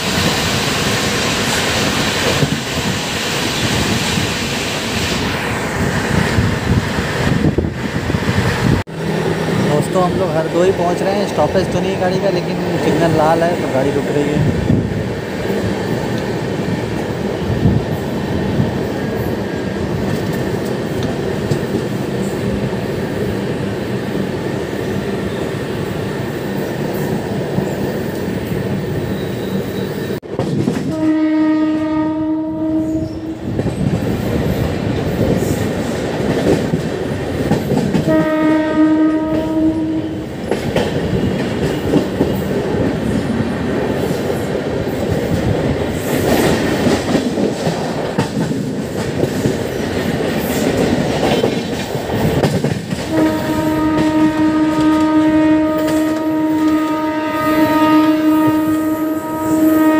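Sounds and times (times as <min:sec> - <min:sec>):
train rumble and wheel clatter: 0:00.0 - 0:59.9
locomotive horn blasts: 0:30.9 - 0:33.4, 0:38.1 - 0:40.2, 0:53.1 - 0:59.9.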